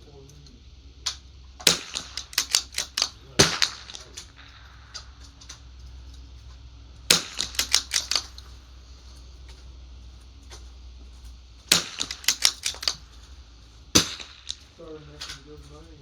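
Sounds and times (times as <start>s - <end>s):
rifle shots: 1.1s - 5.8s, 7.0s - 8.7s, 11.6s - 15.6s.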